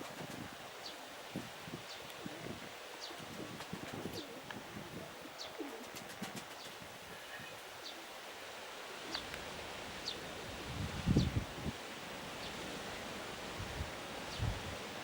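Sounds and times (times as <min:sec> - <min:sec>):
outdoor hiss: 0:00.0 - 0:15.0
pigeons cooing: 0:02.2 - 0:07.6.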